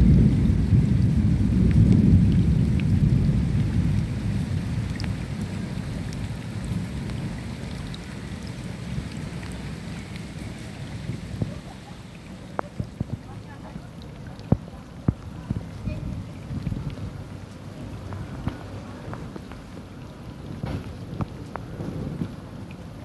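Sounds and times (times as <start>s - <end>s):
rolling thunder: 0.0s - 7.8s, 20.5s - 22.6s
steady rain: 0.0s - 23.0s.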